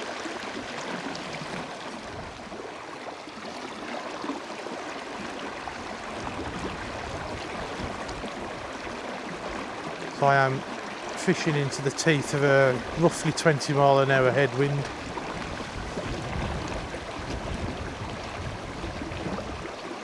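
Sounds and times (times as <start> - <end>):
river water rushing: 0.0 - 20.0
wind buffeting microphone: 5.7 - 10.7, 11.4 - 19.9.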